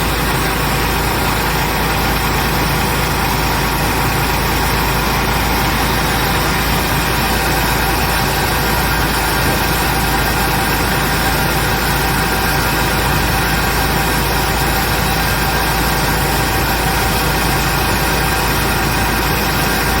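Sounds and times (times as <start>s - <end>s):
washing machine droning: 0.0s - 20.0s.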